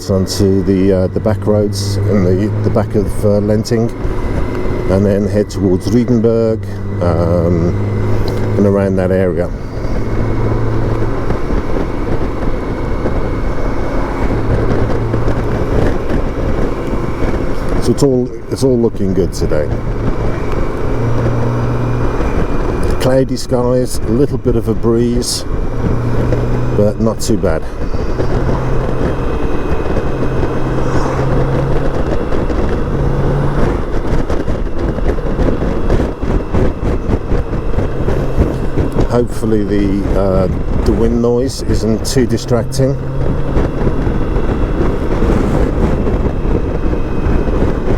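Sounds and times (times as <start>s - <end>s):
heavy wind noise: 0.0s - 47.9s
motorcycle engine running: 0.0s - 47.9s
road noise: 0.0s - 47.9s.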